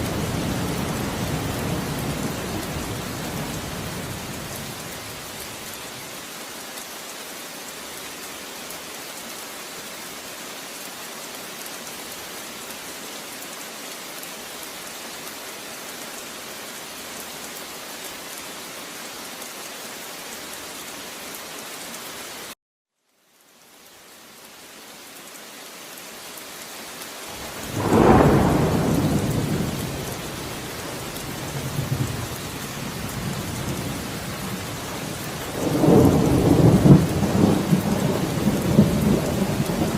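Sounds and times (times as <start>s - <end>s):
rain hissing: 0.0s - 22.6s, 23.3s - 39.9s
thunder rumbling: 27.4s - 39.9s.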